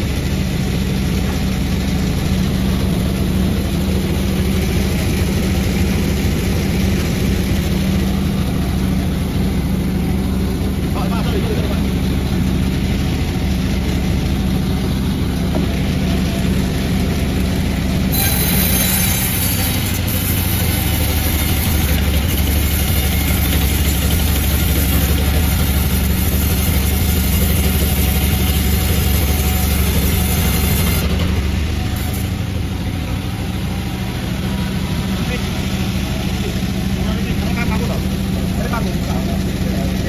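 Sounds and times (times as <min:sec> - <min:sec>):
chainsaw cutting wood: 0:18.1 - 0:32.6.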